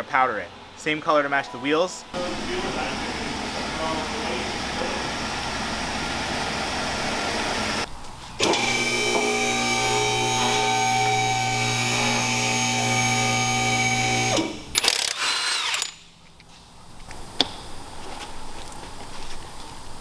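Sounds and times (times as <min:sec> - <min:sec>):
power tool motor running: 0:02.2 - 0:16.0.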